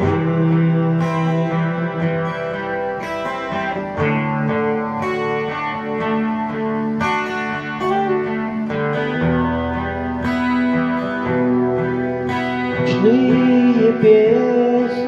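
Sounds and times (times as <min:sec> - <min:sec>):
guitar plucked chords: 0:00.0 - 0:15.0.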